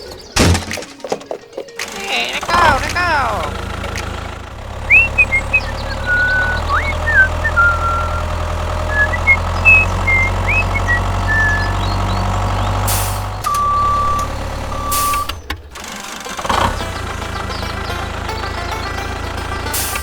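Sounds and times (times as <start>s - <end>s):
low engine-like rumble: 2.6s - 15.7s, 16.6s - 20.0s
high chirping calls: 4.7s - 15.1s
long steady beep: 13.5s - 15.3s.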